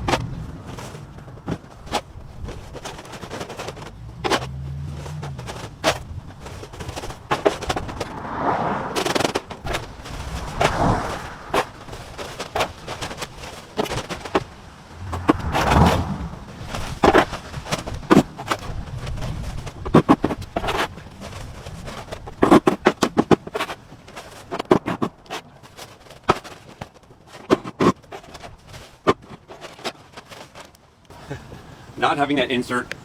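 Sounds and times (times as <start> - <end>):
wood fire crackling: 0.0 - 22.4
fire popping and snapping: 0.0 - 31.2
rushing fire noise: 5.6 - 22.4.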